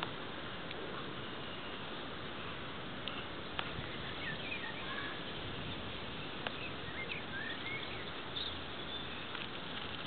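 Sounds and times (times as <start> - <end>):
outdoor background hiss: 0.0 - 10.0.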